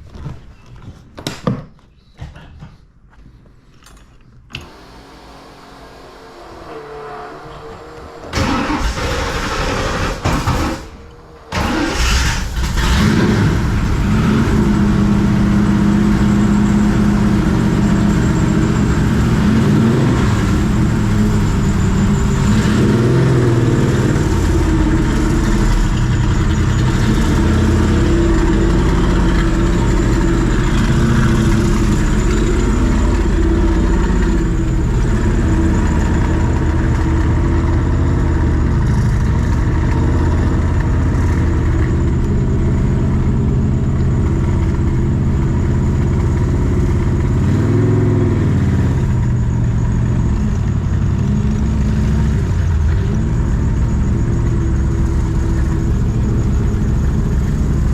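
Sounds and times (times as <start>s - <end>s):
car engine idling loudly: 4.8s - 57.9s
engine cranking: 7.4s - 51.0s.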